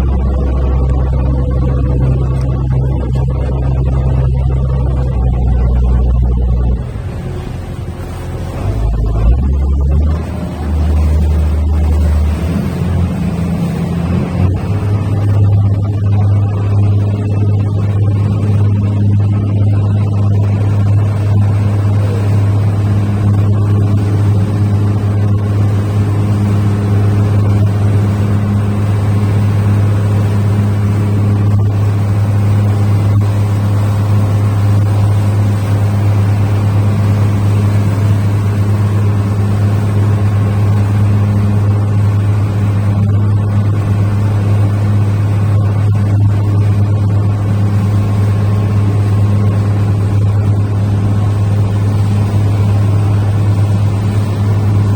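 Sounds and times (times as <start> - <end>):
ferry engine droning: 0.0 - 54.9.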